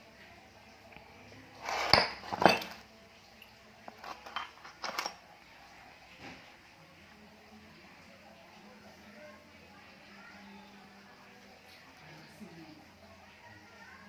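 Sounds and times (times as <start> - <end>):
metal objects clinking together: 1.6 - 2.8, 3.9 - 5.2.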